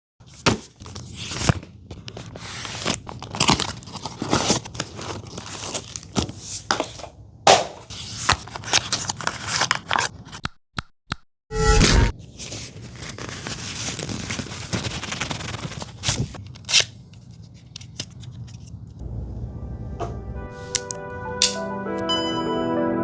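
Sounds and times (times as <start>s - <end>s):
packaging rustling and tearing: 0.2s - 7.1s, 7.8s - 10.4s, 12.2s - 18.8s.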